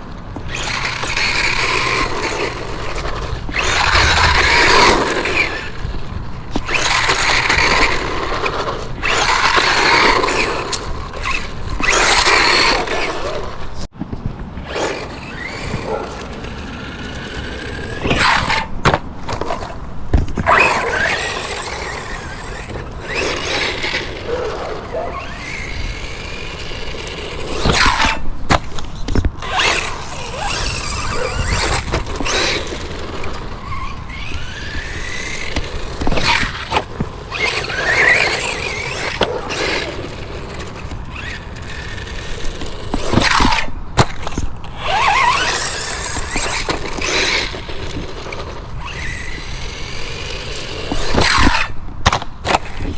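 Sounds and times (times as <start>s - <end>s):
toy truck motor whine: 0.5s - 5.8s, 6.6s - 13.2s, 14.6s - 18.8s, 20.4s - 28.2s, 29.4s - 43.7s, 44.8s - 51.7s.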